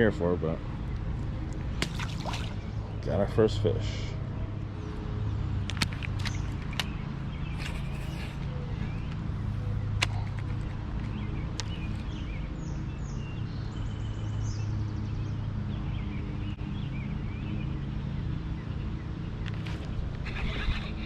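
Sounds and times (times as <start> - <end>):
birds chirping: 0.0 - 21.0
low mechanical hum: 0.0 - 21.0
sharp clicks: 5.6 - 7.0.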